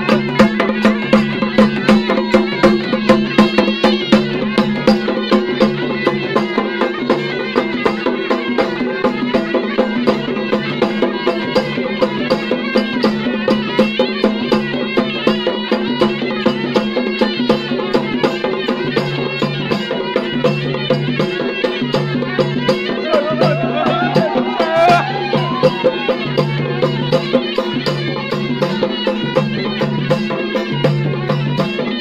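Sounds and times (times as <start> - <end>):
drums beating fast rhythm: 0.0 - 32.0
wavering melody: 16.0 - 32.0.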